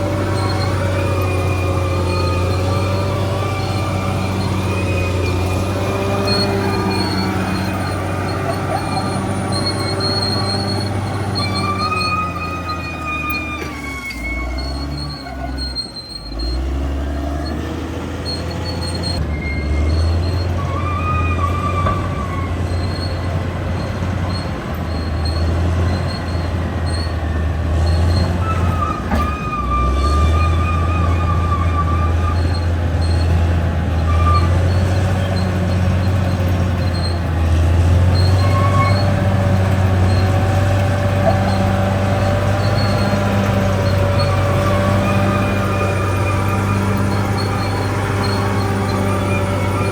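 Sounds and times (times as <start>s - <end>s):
bulldozer diesel engine: 0.0s - 49.9s
steel tracks squealing: 0.0s - 49.9s.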